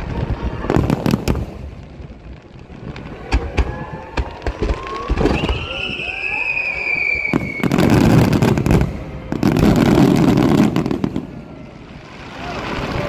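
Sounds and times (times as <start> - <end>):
fireworks booming and crackling: 0.0 - 13.0
firework shell whistling: 3.3 - 9.4.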